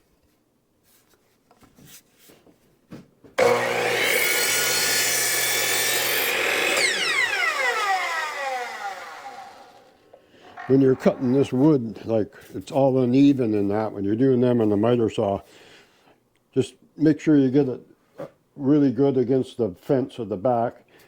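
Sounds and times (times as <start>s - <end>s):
electric saw cutting branch: 3.4s - 11.5s.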